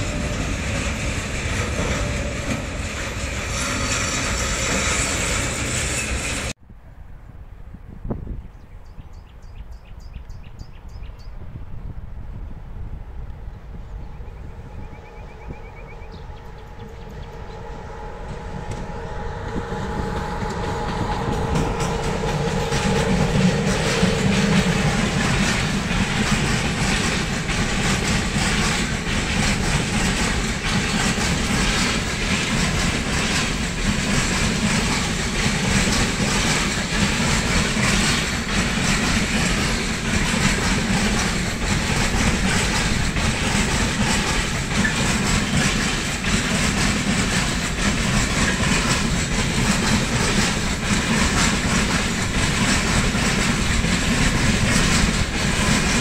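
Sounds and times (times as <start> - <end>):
wheels clattering over rail joints: 0.0 - 6.6, 18.2 - 56.0
freight train rumbling: 0.0 - 6.7, 7.9 - 56.0.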